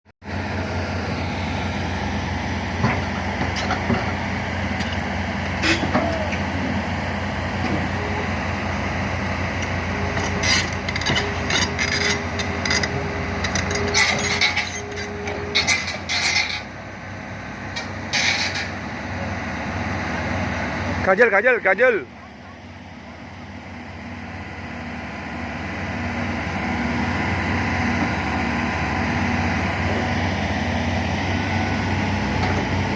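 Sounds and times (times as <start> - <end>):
diesel machinery running: 0.2 - 32.9
metal clanks and knocks: 2.8 - 4.2, 10.1 - 16.7, 17.7 - 18.8.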